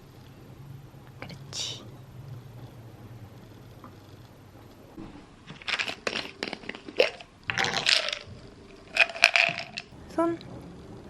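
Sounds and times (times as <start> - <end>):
dog crunching a treat: 5.4 - 9.9.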